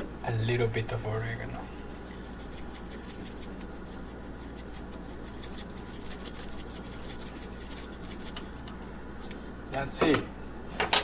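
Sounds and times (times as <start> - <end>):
steady low hum: 0.0 - 11.0
dry herbs sprinkling ticks: 1.7 - 8.8.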